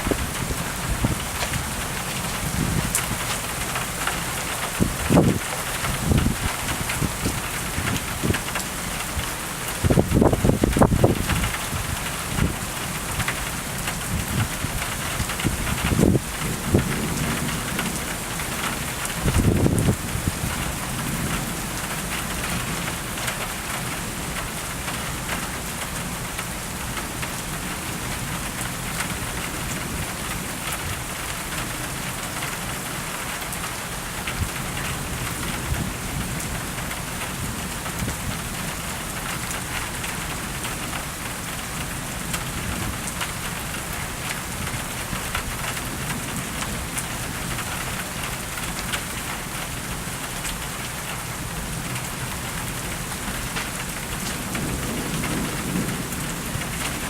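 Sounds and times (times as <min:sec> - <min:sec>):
steady rain on hard surfaces: 0:00.0 - 0:57.0
thunder rumbling: 0:54.1 - 0:57.0.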